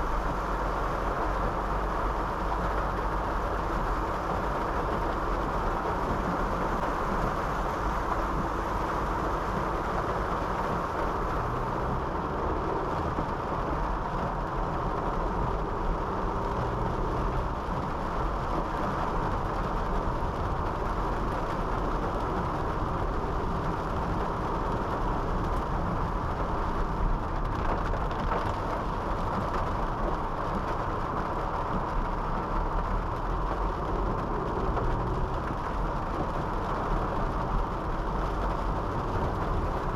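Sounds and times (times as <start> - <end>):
low engine hum: 0.0 - 39.9
tyre noise on wet road: 0.0 - 39.9.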